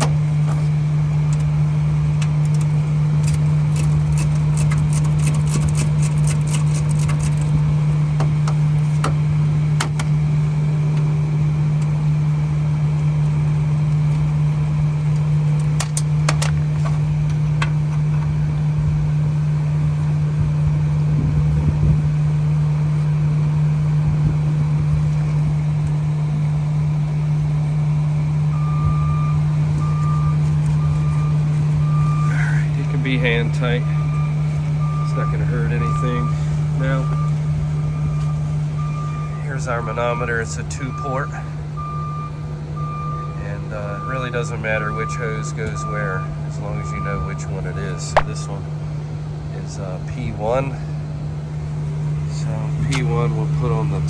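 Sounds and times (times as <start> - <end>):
low machine hum: 0.0 - 54.0
short beeps: 45.0 - 48.5.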